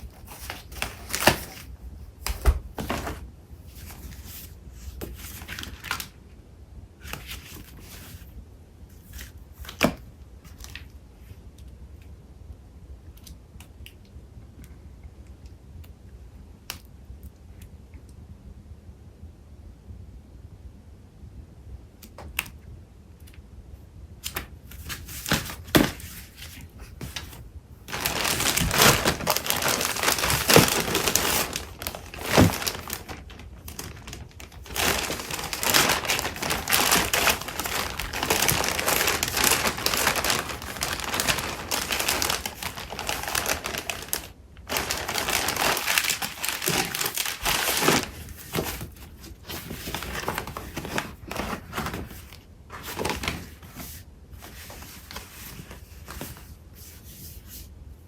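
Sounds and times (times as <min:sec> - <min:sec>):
paper crinkling and rustling: 0:00.0 - 0:06.2, 0:07.0 - 0:08.3, 0:24.2 - 0:57.6.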